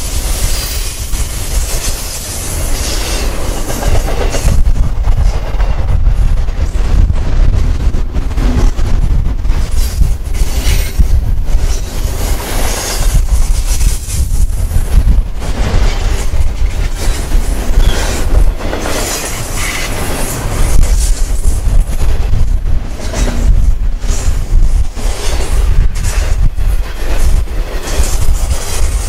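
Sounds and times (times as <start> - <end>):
steel wheels rumbling on rail: 0.0 - 29.0
clacks and knocks of trucks: 3.3 - 7.2.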